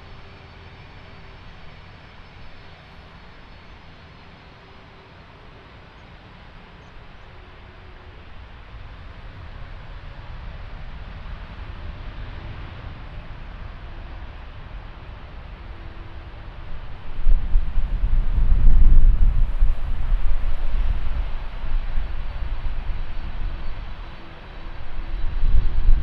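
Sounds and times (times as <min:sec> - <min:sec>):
jet airliner engine rush: 0:00.0 - 0:26.0.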